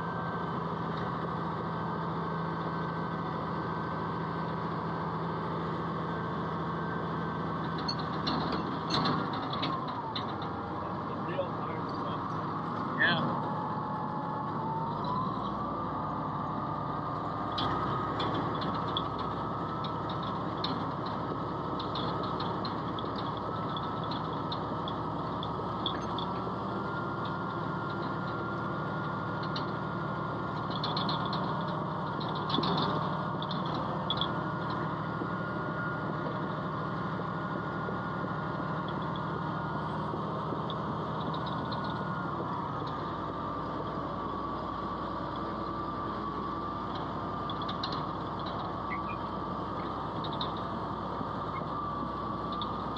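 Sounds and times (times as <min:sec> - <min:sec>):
diesel engine running: 0:00.0 - 0:52.9
light metallic rattles: 0:07.6 - 0:15.4, 0:16.6 - 0:44.4.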